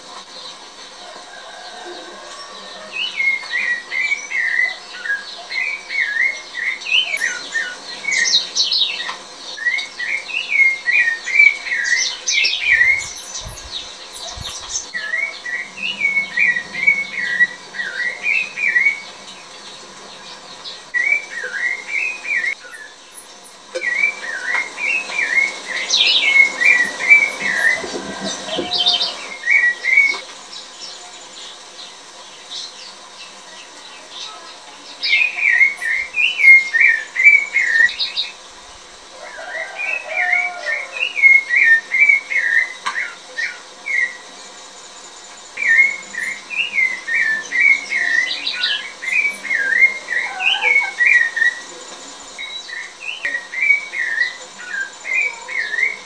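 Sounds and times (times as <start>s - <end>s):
bird warbling: 1.3s - 30.2s, 45.6s - 56.0s.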